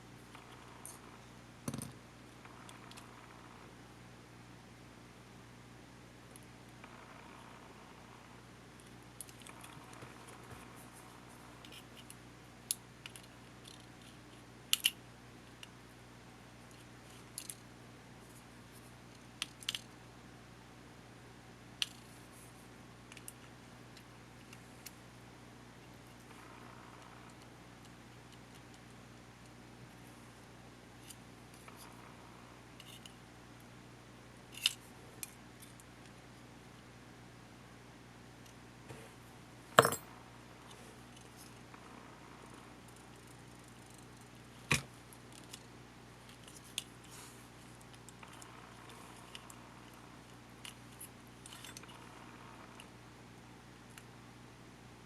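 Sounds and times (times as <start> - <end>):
faint steady hum: 0.0 - 55.0
small parts and tools clicking: 8.8 - 10.4, 11.6 - 15.8, 16.7 - 17.6, 19.1 - 19.9, 21.8 - 22.0, 32.8 - 33.2, 34.5 - 35.9, 42.9 - 45.7, 46.3 - 49.6, 50.2 - 52.9.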